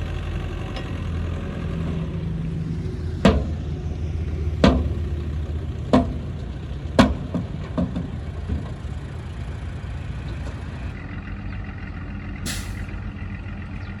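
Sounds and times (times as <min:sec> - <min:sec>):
bulldozer diesel engine running: 0:00.0 - 0:14.0
short hiss: 0:12.5 - 0:12.9.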